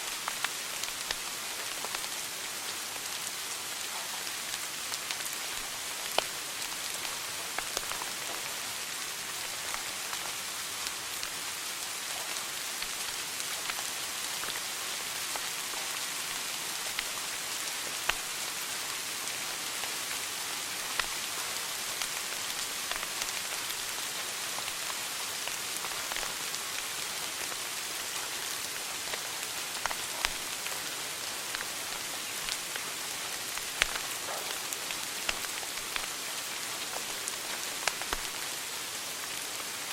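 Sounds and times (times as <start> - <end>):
sharp pops and snaps: 16.9 - 17.2, 18.0 - 18.3, 29.0 - 30.7, 31.5 - 32.8, 33.4 - 36.2, 36.8 - 38.4
wood fire crackling: 18.0 - 18.3, 25.4 - 38.4.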